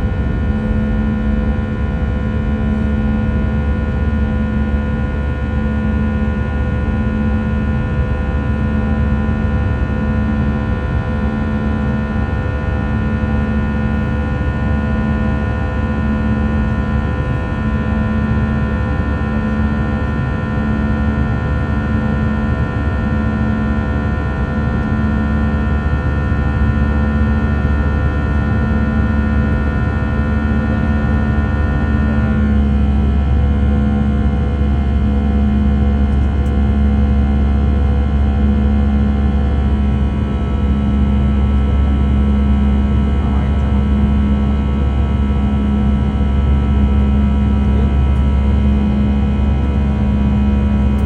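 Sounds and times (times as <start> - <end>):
jet engines rumbling in cabin: 0.0 - 51.0.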